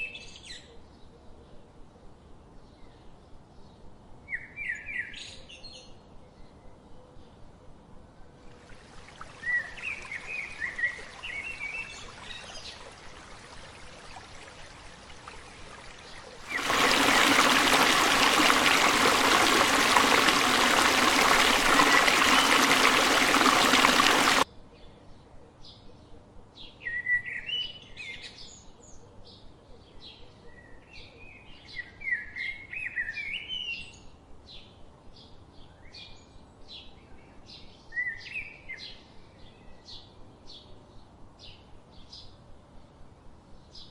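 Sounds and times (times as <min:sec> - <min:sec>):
songbirds chirping: 0:15.4 - 0:24.4.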